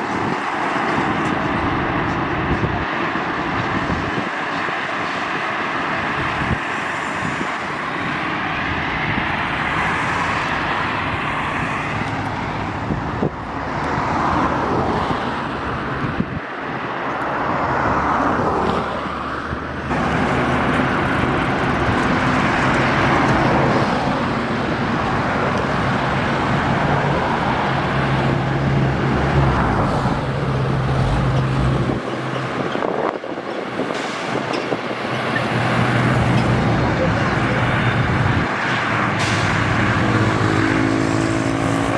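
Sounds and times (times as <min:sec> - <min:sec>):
heavy truck engine drone: 0:00.0 - 0:41.9
traffic passing on highway: 0:00.0 - 0:41.9.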